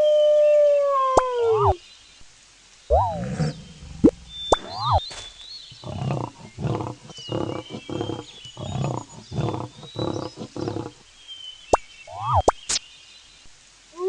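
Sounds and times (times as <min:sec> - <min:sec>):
small birds chirping: 0:01.2 - 0:14.0
animal grunting calls: 0:02.9 - 0:11.0.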